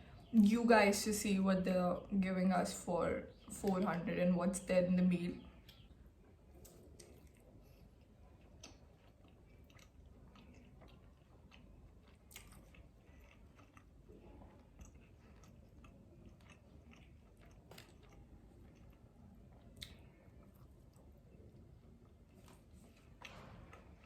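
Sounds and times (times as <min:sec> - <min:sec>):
chewing food: 0:05.6 - 0:24.0.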